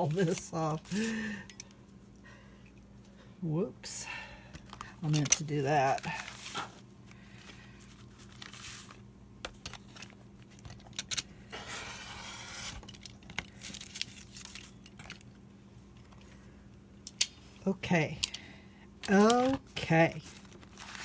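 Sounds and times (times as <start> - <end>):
paper rustling and sliding: 5.8 - 9.0, 11.5 - 14.7, 20.2 - 21.0
paper tearing: 11.6 - 12.9.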